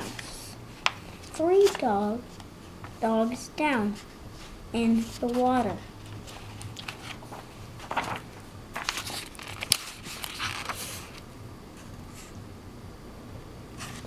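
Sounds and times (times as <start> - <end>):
book pages turning: 0.0 - 11.2.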